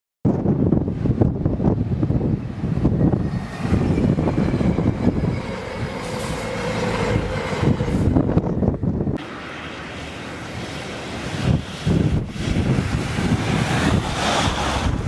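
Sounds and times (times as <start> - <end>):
train rumbling past: 0.4 - 15.0.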